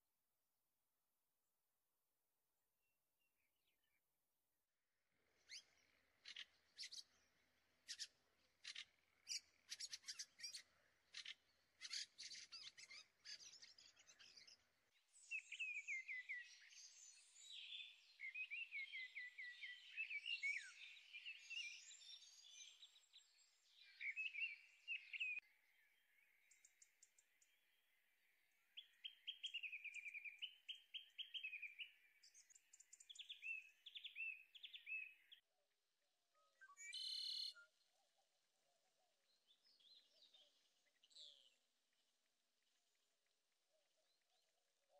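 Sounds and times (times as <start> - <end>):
faint birdsong chirps and twitters: 2.7 - 44.9.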